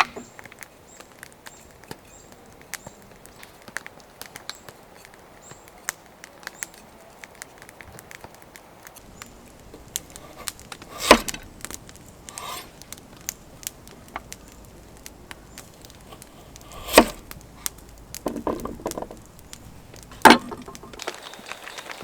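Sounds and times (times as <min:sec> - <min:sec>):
small crackles and clicks: 0:00.0 - 0:22.0
axe chopping wood: 0:09.1 - 0:21.0.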